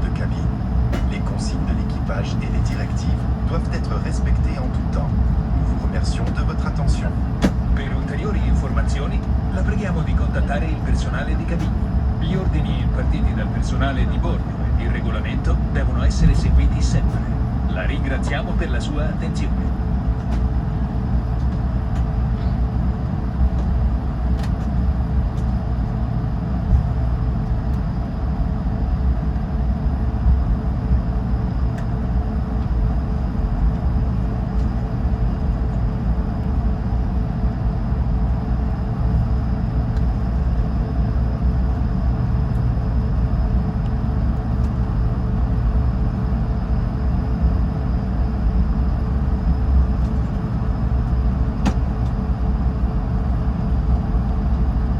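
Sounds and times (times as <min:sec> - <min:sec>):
aircraft cabin rumble: 0:00.0 - 0:54.9
jet engine hum: 0:00.0 - 0:54.9.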